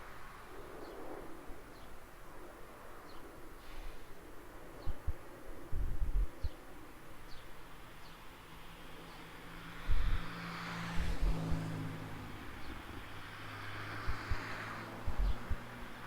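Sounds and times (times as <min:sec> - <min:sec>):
road traffic passing: 0:07.7 - 0:16.0.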